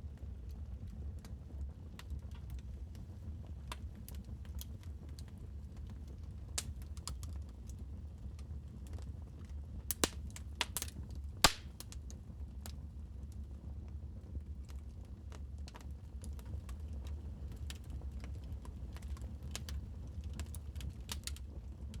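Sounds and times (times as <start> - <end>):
wood fire crackling: 0.2 - 13.4, 14.5 - 22.0.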